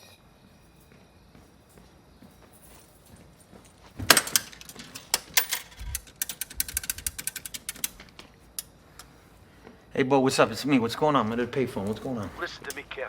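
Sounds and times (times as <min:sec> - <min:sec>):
metallic clatter: 0:04.1 - 0:08.7
coins and handset clicking: 0:04.1 - 0:09.1.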